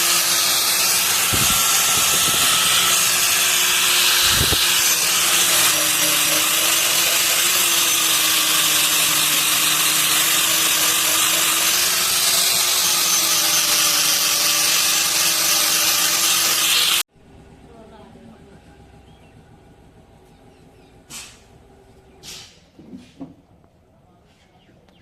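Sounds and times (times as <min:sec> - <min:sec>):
power tool whirring: 0:00.0 - 0:17.1.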